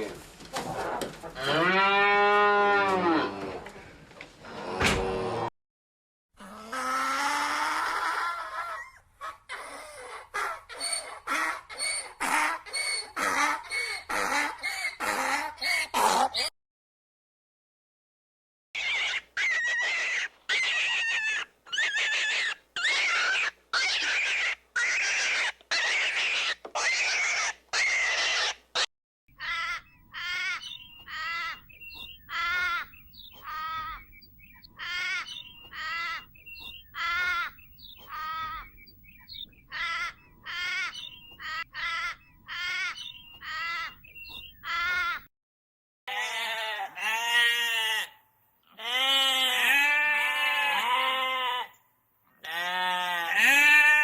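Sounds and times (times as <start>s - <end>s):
short repeated animal calls: 18.8s - 31.6s
harsh animal calls: 18.8s - 38.8s, 39.7s - 45.3s
sheep bleating: 46.1s - 51.8s, 52.4s - 54.0s.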